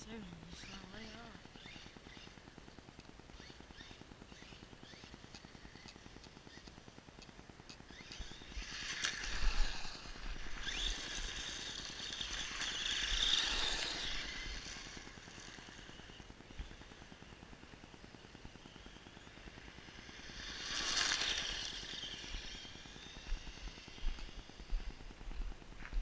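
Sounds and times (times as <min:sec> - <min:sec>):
toy truck electric motor whining: 0:07.8 - 0:24.7.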